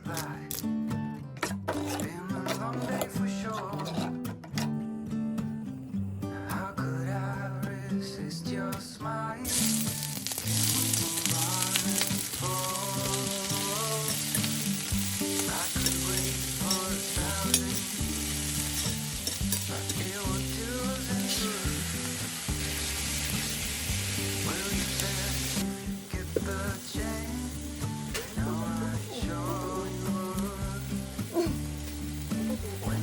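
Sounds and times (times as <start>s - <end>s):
acoustic guitar music: 0.0s - 33.0s
food sizzling in a hot pan: 9.5s - 33.0s.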